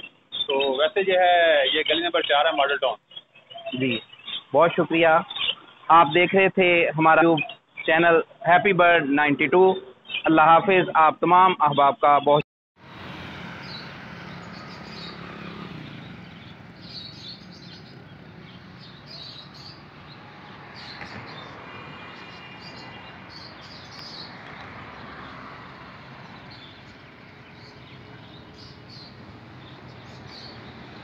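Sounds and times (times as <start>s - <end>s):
road traffic noise: 0.0s - 11.9s, 12.8s - 31.0s
small birds chirping: 0.0s - 12.4s, 13.3s - 31.0s
vehicles passing: 12.8s - 31.0s.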